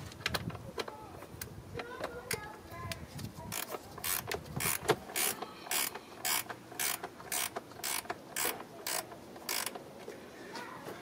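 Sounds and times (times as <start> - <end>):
ratchet wrench clicking: 3.5 - 9.8.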